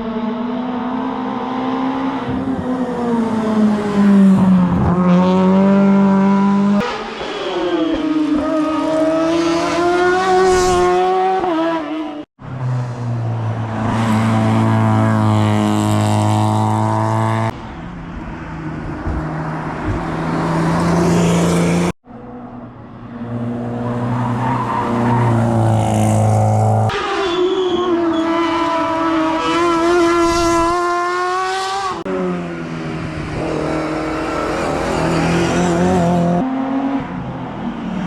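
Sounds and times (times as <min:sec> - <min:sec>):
rally car engines at full throttle: 0:00.0 - 0:27.0, 0:27.9 - 0:38.0.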